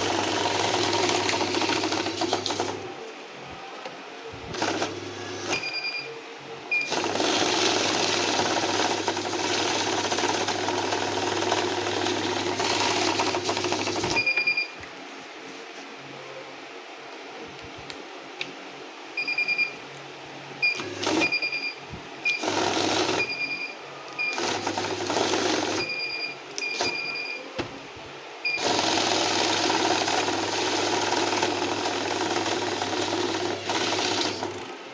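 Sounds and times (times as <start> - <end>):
banknote counting machine: 0.0 - 2.9, 4.5 - 5.9, 6.8 - 14.6, 20.8 - 21.6, 22.3 - 23.6, 24.3 - 27.1, 28.6 - 34.8.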